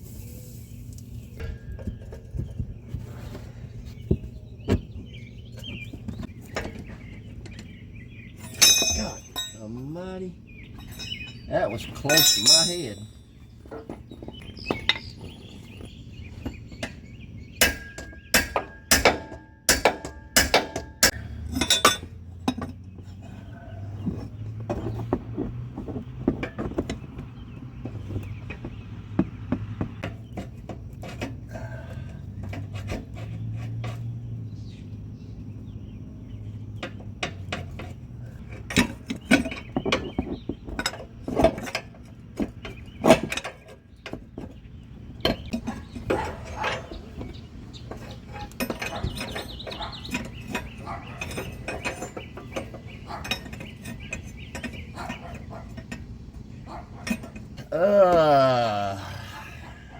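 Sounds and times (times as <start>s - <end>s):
metal tools clinking: 6.5s - 17.1s, 17.7s - 27.0s, 36.7s - 44.2s, 47.9s - 57.7s.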